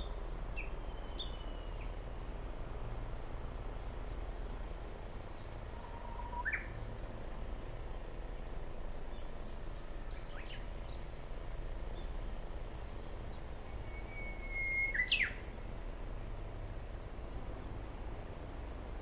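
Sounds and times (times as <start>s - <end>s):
small bird chirping: 0.0s - 2.0s, 5.4s - 6.8s, 9.1s - 11.1s, 13.0s - 15.5s
outdoor background noise: 0.0s - 19.0s.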